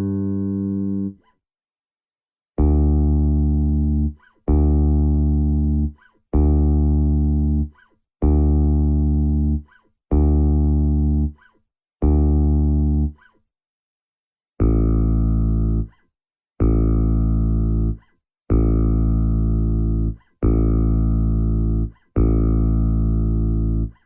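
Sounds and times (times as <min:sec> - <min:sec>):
bass guitar low note: 0:14.6 - 0:15.9.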